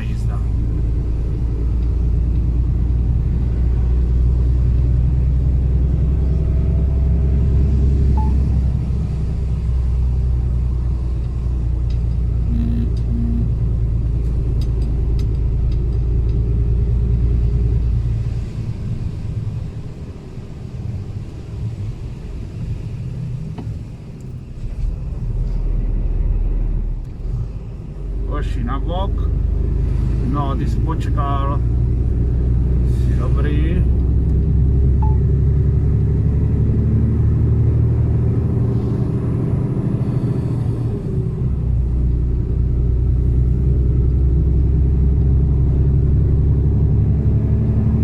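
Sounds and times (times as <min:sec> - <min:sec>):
truck engine droning: 0:00.0 - 0:48.0
short beeps: 0:08.2 - 0:08.4, 0:12.5 - 0:13.6, 0:35.0 - 0:35.2.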